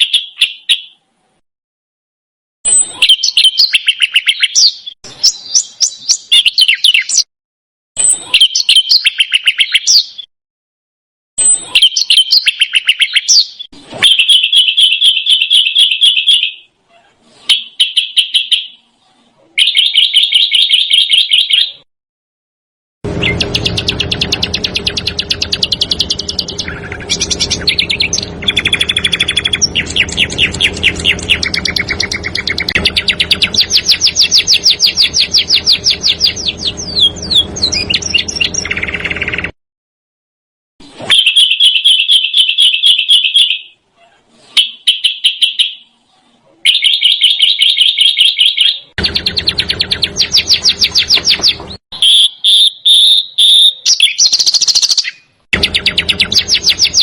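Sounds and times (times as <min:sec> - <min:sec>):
low hum: 0:23.0 - 0:39.5, 0:49.0 - 0:51.8, 0:55.6 - 0:57.0
songbird rattling trills: 0:23.1 - 0:39.5, 0:49.0 - 0:52.2, 0:55.6 - 0:57.0.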